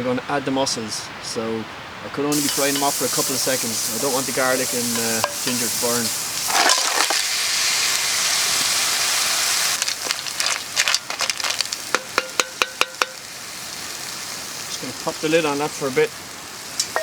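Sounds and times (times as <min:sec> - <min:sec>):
aromatics sizzling in hot oil: 0:02.3 - 0:17.0
mussel shells clattering into pot: 0:06.4 - 0:07.3, 0:09.7 - 0:13.2.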